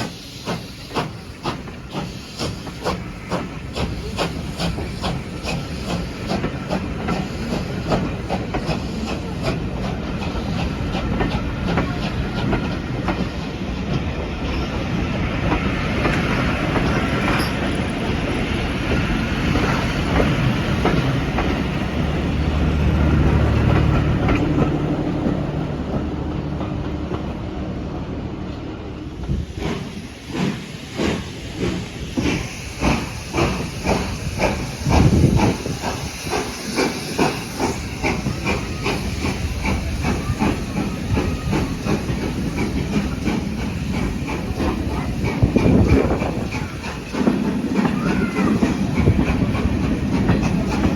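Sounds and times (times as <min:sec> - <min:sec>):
train wheels clicking over rail joints: 0:00.0 - 0:27.5, 0:28.5 - 0:50.9
low train rumble: 0:00.0 - 0:50.9.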